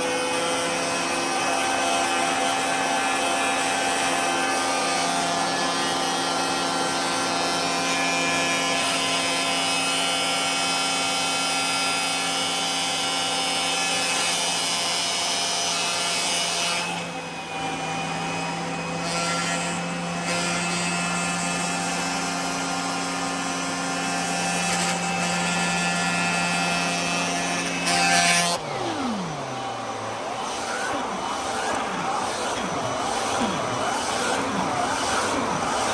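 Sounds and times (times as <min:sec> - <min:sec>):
vacuum cleaner running: 0:00.0 - 0:07.8, 0:21.2 - 0:35.9
vacuum motor spinning down: 0:26.9 - 0:35.9.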